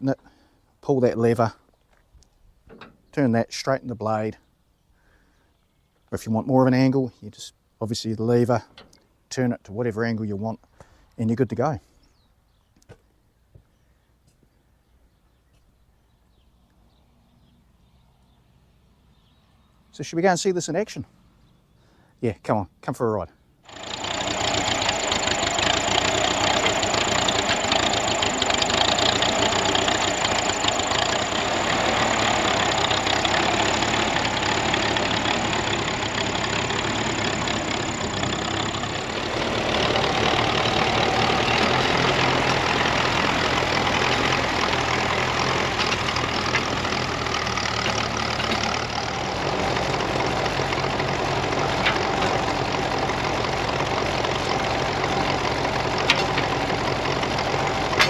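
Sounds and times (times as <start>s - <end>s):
tractor engine running: 23.7s - 58.0s.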